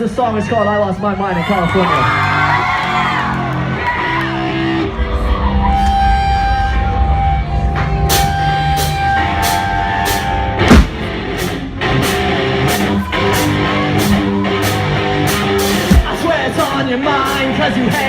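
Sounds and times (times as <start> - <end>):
electric guitars sustained notes: 2.4 - 18.0
drum kit with cymbal hits: 7.7 - 18.0.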